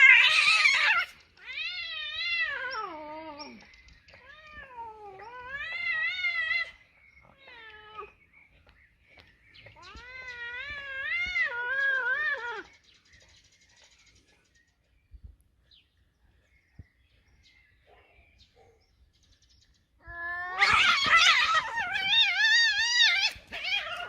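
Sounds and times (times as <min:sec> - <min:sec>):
cats yowling: 0:00.0 - 0:08.2, 0:09.6 - 0:12.7, 0:20.0 - 0:24.0.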